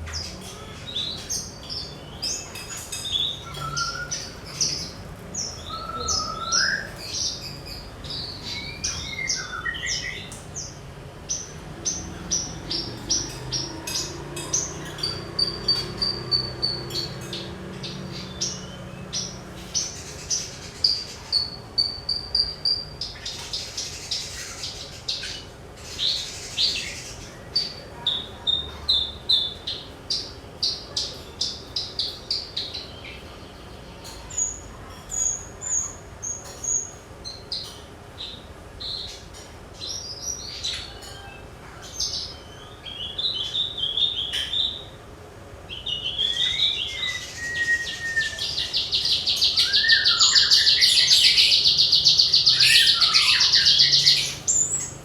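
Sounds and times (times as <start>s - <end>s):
bush lark singing: 45.8s - 55.0s.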